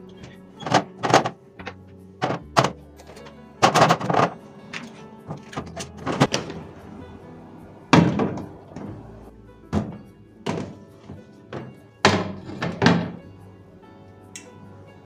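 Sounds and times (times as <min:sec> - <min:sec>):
soft background music: 0:00.0 - 0:15.0
household items thudding: 0:00.6 - 0:06.8, 0:07.9 - 0:13.3.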